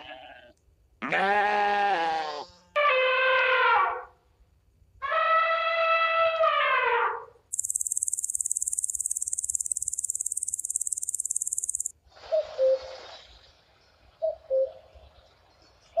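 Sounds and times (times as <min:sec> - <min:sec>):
insect pulsing trill: 0:07.5 - 0:11.9.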